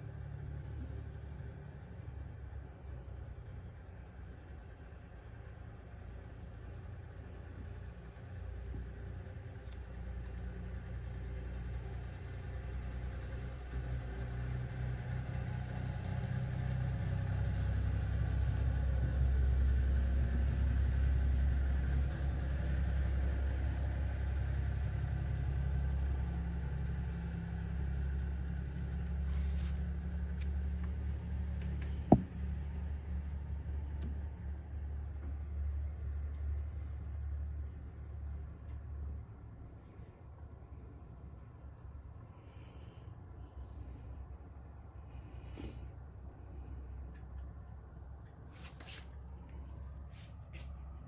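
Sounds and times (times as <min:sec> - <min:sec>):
steady low rumble: 0:00.0 - 0:14.3, 0:25.5 - 0:48.4.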